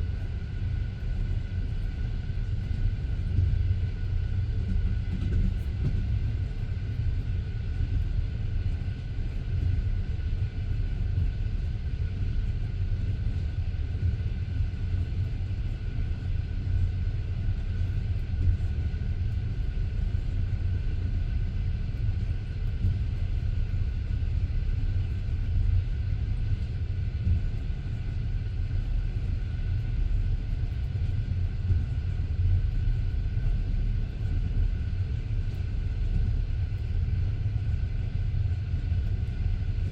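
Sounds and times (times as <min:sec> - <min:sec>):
faint high hum: 0:00.0 - 0:39.9
train wheels rumbling on rails: 0:01.1 - 0:07.0.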